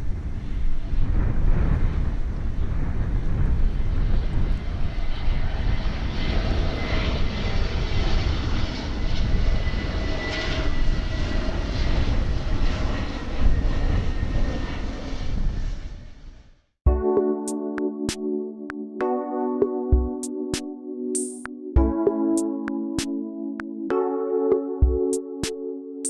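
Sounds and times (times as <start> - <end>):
jet airliner passing overhead: 0.0 - 16.5.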